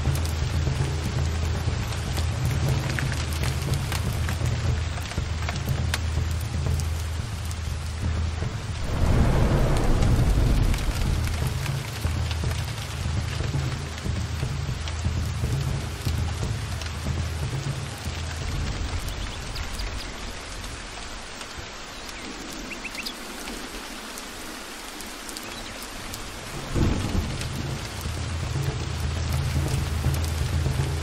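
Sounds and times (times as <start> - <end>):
heavy rain falling: 0.0 - 31.0
rolling thunder: 8.5 - 13.4, 26.3 - 28.5
loud thunderclap: 8.6 - 12.8, 26.6 - 28.2.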